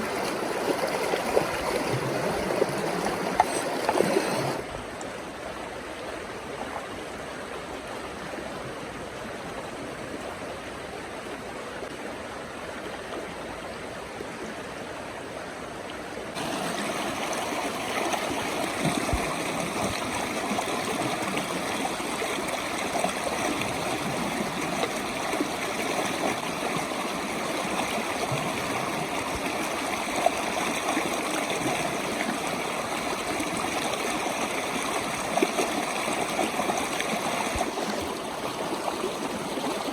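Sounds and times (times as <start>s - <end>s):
river water rushing: 0.0s - 13.3s, 16.3s - 39.9s.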